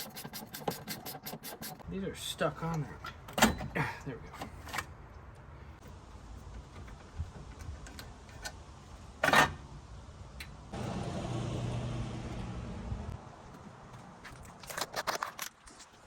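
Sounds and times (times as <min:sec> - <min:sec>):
vehicle engine running: 0:10.8 - 0:13.2
low rumble: 0:10.8 - 0:13.3.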